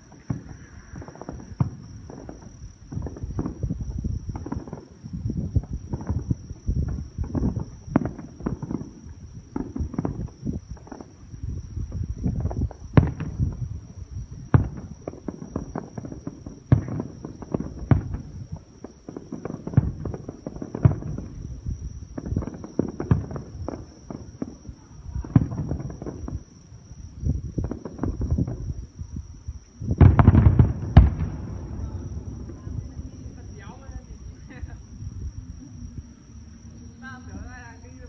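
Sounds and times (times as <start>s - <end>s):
fireworks bangs: 0.0s - 38.0s
fireworks crackles: 0.0s - 38.0s
low rumble: 30.7s - 37.0s.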